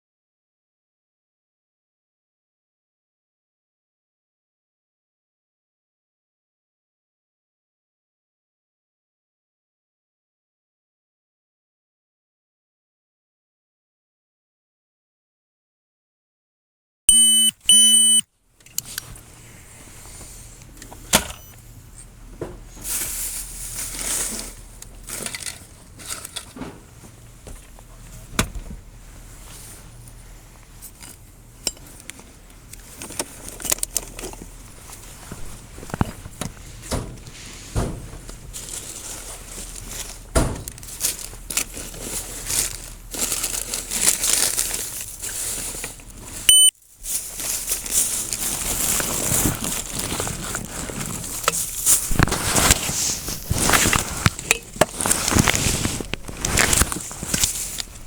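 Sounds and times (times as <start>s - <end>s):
short electronic beeps: 17.1s - 18.2s, 46.5s - 46.7s
clothing rustling on microphone: 18.0s - 58.0s.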